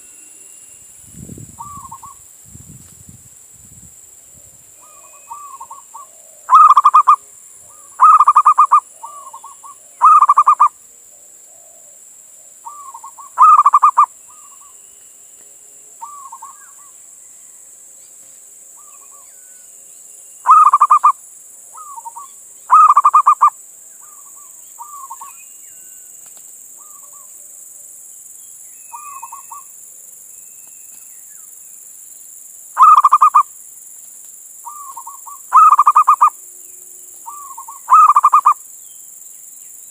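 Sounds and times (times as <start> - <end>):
dove trilled cooing: 1.6 - 2.2, 4.8 - 14.8, 16.0 - 17.0, 20.4 - 25.4, 26.8 - 27.4, 28.9 - 29.7, 32.8 - 33.5, 34.6 - 36.4, 37.2 - 38.6.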